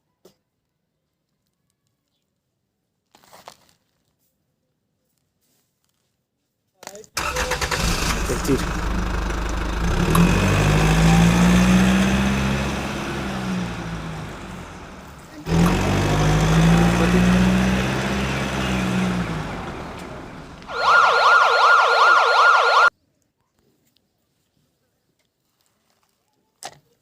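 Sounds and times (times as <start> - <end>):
motor engine revving: 7.2 - 22.9
electronic siren warble: 20.7 - 22.9.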